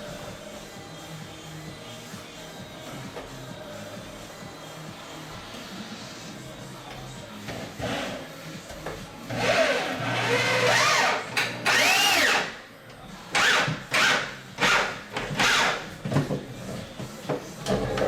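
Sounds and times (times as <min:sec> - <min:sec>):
power drill driving screws: 0:09.3 - 0:12.5.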